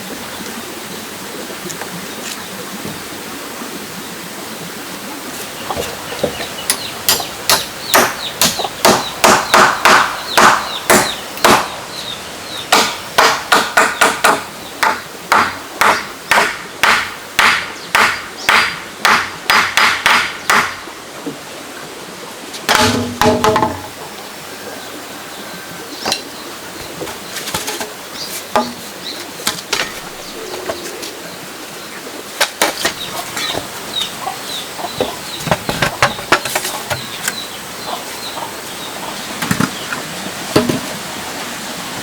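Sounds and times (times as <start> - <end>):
steady background hiss: 0.0 - 42.0
hammer driving nails into wood: 12.7 - 20.8.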